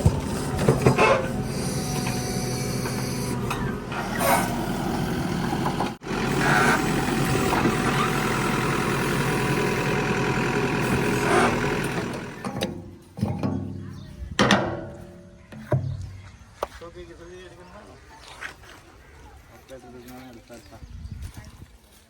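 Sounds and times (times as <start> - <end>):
backhoe diesel engine running: 0.0 - 14.3.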